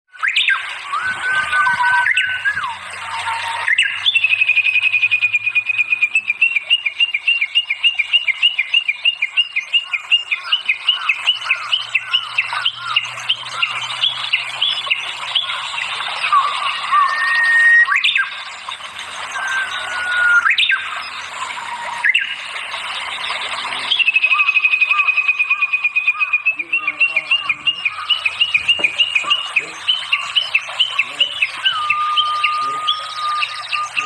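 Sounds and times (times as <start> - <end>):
songbird singing: 0.1 - 34.0.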